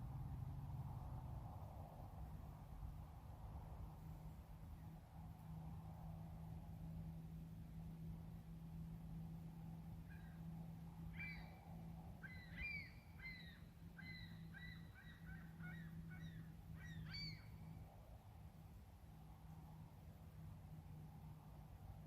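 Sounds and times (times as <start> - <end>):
faint low hum: 0.0 - 22.0
bird calling: 11.1 - 17.6.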